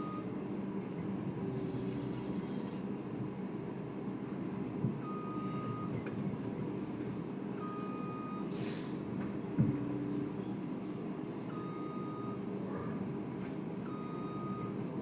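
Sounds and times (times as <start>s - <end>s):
diesel engine running: 0.0s - 15.0s
short hiss: 8.5s - 9.0s.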